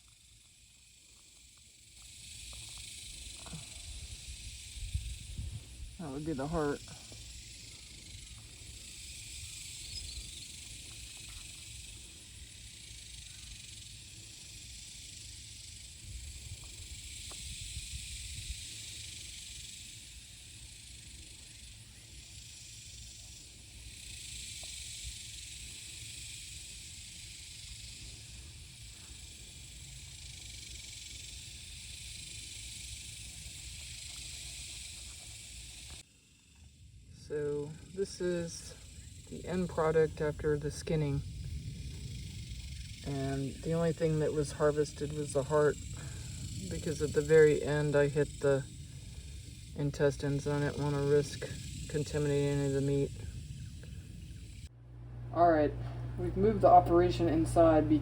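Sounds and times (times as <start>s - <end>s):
high-pitched insect hiss: 0.0s - 54.8s
low rumble: 50.4s - 58.0s.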